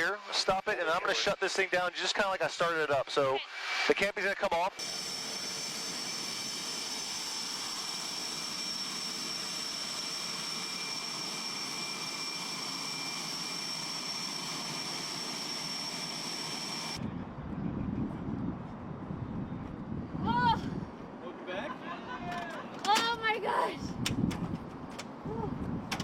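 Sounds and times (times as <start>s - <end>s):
jet engines idling with whine: 0.0s - 18.4s.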